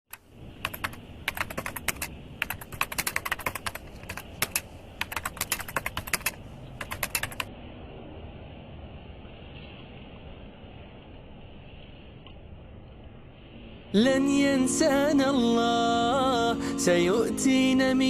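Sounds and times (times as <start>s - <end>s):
keyboard key clicks: 0.1s - 7.5s.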